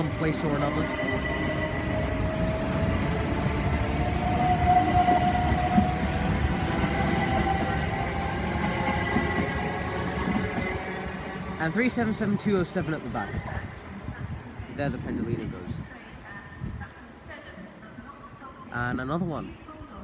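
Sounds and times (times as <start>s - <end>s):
wheels rumbling on rail: 0.0s - 15.1s.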